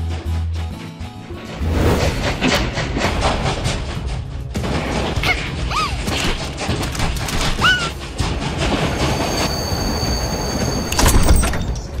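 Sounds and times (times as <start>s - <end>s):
cartoon train rumble: 7.4s - 11.0s
high steady squeal: 8.9s - 11.0s.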